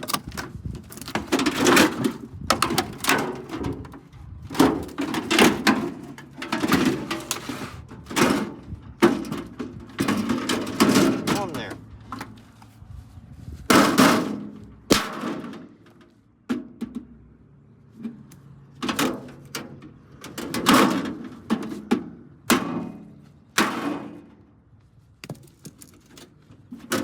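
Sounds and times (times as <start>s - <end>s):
metal casing knocks and clanks: 0.0s - 12.4s.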